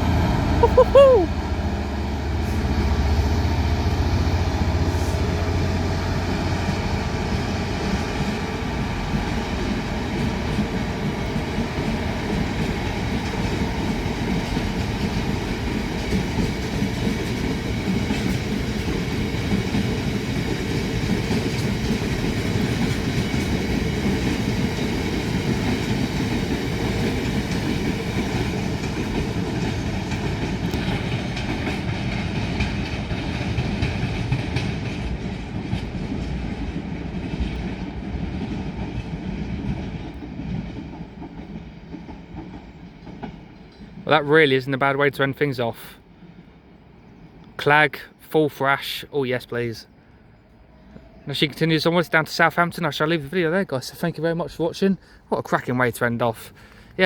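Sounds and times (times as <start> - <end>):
diesel locomotive engine throb: 0.0 - 44.0
wagon wheels clattering over rail joints: 6.7 - 44.2.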